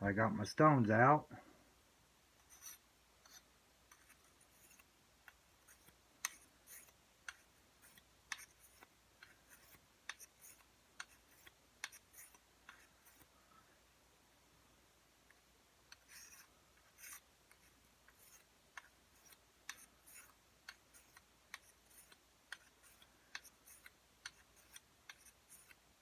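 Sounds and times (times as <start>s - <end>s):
blade scraping on sharpening stone: 16.0s - 17.2s.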